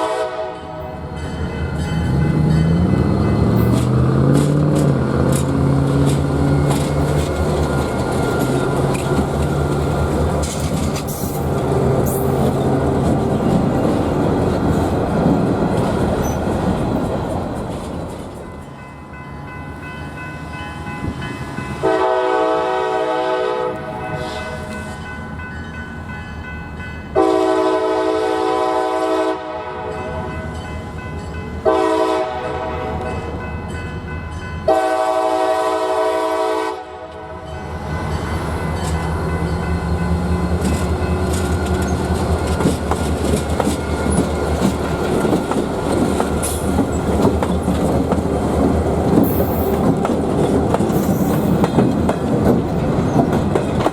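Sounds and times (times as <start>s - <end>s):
locomotive horn: 0.0s - 1.1s, 21.8s - 24.8s, 27.2s - 30.5s, 31.6s - 33.4s, 34.6s - 37.5s
train rumbling past: 0.0s - 53.9s
wheels clicking over rail joints: 2.0s - 18.6s, 38.7s - 53.9s.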